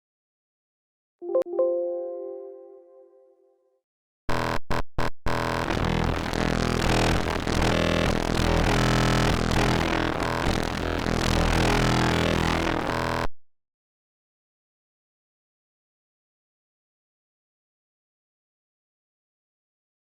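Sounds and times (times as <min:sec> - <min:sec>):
gritty synthesizer tone: 0:04.3 - 0:13.3.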